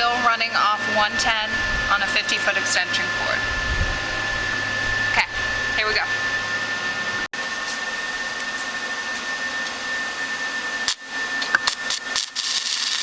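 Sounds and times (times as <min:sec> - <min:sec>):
high whine: 0:00.0 - 0:12.6
welding arc hissing and crackling: 0:10.9 - 0:13.0.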